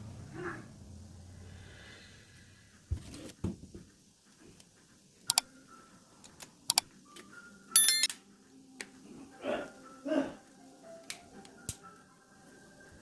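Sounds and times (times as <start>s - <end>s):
tools and phone parts clicking: 7.8s - 8.1s.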